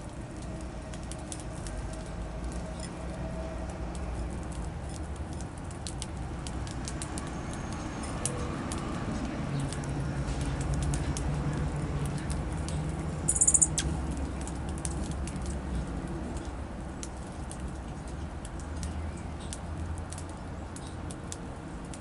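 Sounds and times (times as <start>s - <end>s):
birds pecking and fluttering: 0.0s - 22.0s
high bird chirp: 13.3s - 13.9s.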